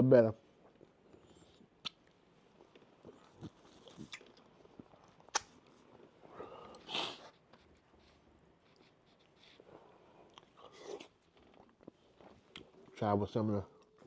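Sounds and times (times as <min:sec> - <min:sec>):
person chewing and swallowing: 0:00.6 - 0:06.9, 0:09.8 - 0:12.9
sharp mouth clicks: 0:01.8 - 0:02.1, 0:05.3 - 0:05.6
breathy mouth sound: 0:06.3 - 0:07.4.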